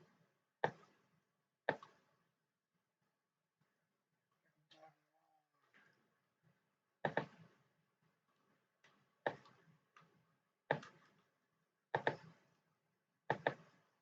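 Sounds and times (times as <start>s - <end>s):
computer mouse clicking: 12.0s - 12.3s.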